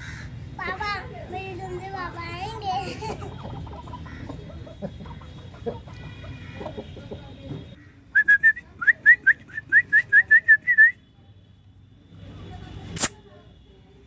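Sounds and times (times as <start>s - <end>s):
chickens clucking: 2.8s - 7.8s.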